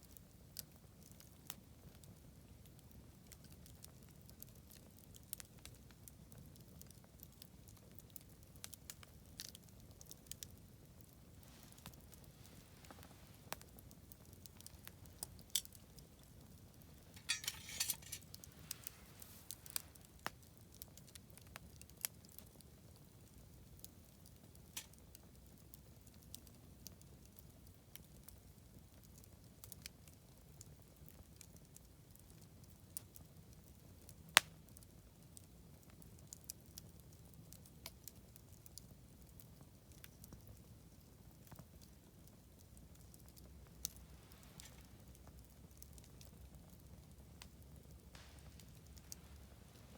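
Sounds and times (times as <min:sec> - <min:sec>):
campfire crackling and popping: 0:00.0 - 0:49.9.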